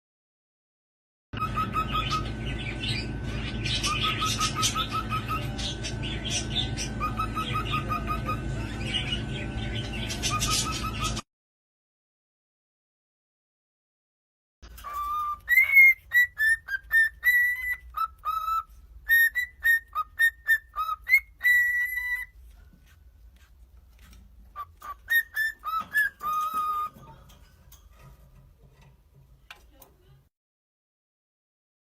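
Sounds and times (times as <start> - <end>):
bird whistling a tune: 1.4 - 11.2, 14.7 - 22.4, 24.6 - 27.0.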